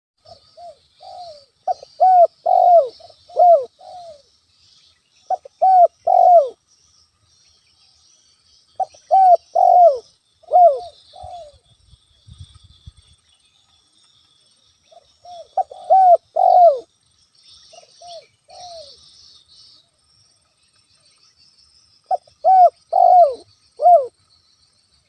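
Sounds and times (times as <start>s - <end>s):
dove cooing: 0.2s - 4.3s, 5.3s - 6.6s, 8.8s - 11.6s, 14.9s - 16.9s, 17.8s - 19.0s, 22.1s - 24.1s
faint high chirping: 0.2s - 25.0s.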